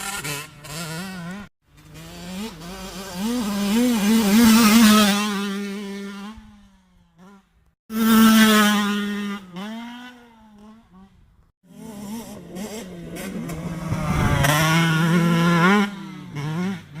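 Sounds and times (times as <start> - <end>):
two-stroke motocross engine running: 0.0 - 17.0.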